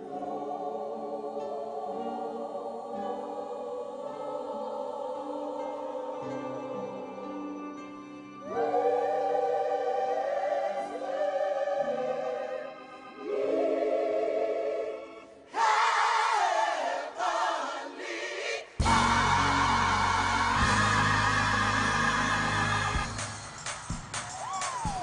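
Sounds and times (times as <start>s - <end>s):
gospel choir singing: 0.0s - 23.9s
deep bass accompaniment: 18.8s - 23.4s.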